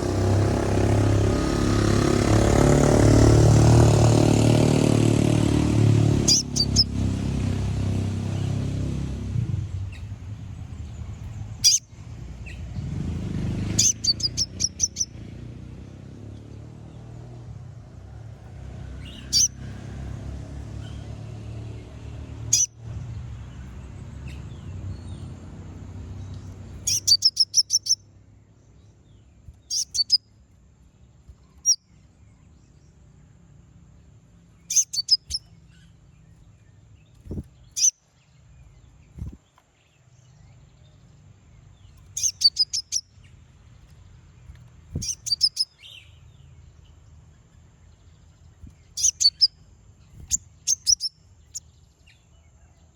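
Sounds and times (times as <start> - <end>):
bird calling in rapid high chips: 6.2 - 7.0, 11.6 - 11.9, 13.6 - 15.2, 19.0 - 19.6, 22.5 - 22.8, 26.8 - 28.1, 29.6 - 30.3, 34.6 - 36.0, 37.6 - 38.1, 42.1 - 43.3, 44.9 - 46.2, 48.8 - 51.7
low steady rumble: 7.6 - 15.1.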